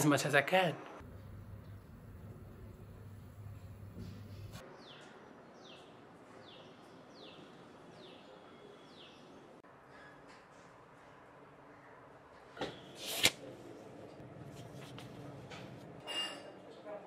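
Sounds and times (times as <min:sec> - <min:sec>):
gas stove hum: 0:01.0 - 0:04.6.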